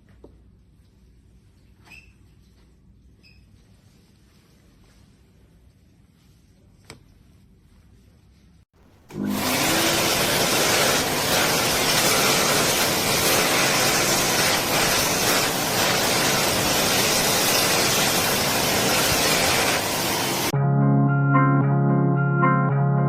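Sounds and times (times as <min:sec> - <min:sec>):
hand dryer blowing air: 0:09.1 - 0:20.5.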